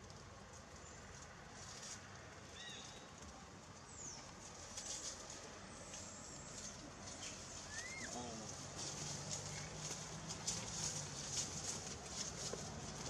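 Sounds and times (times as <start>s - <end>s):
leaves rustling: 0.0s - 13.0s.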